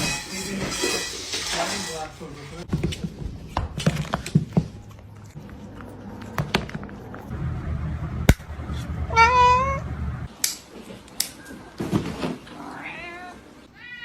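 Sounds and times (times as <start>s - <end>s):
cat meowing loudly: 9.1s - 9.8s, 12.6s - 14.0s.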